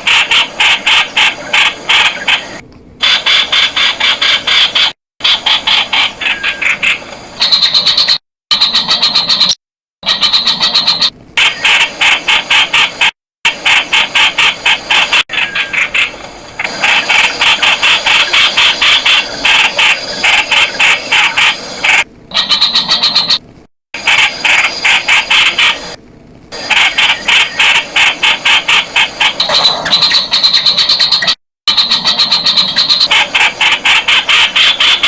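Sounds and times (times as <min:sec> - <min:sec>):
bulbul calling harsh notes: 0:00.1 - 0:11.8.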